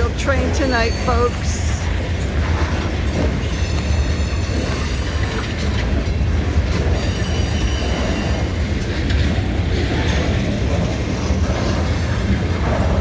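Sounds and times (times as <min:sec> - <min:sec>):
train cars rumbling past: 0:00.0 - 0:13.0
high-pitched wheel squeal: 0:03.4 - 0:05.4, 0:06.8 - 0:08.6.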